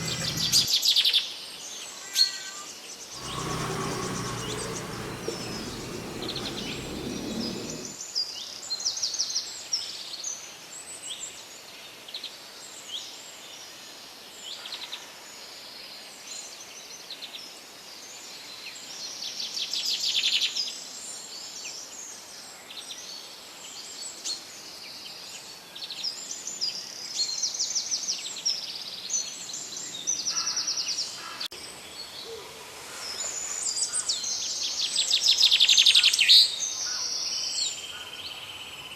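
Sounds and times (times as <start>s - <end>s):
birds chirping and trilling: 0.0s - 0.7s, 3.2s - 8.0s.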